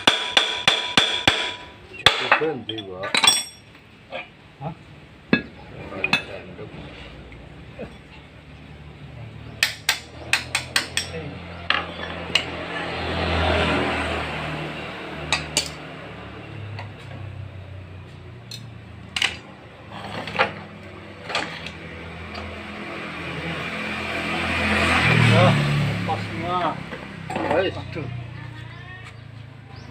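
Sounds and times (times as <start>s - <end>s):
metal tools clinking: 2.3s - 4.3s, 10.9s - 12.5s, 18.4s - 22.5s.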